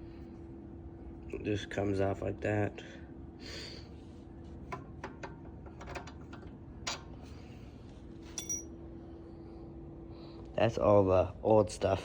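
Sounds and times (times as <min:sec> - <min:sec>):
steady low hum: 0:00.0 - 0:12.0
small metal parts clicking: 0:08.4 - 0:08.6
ringing metallic clink: 0:08.4 - 0:08.7.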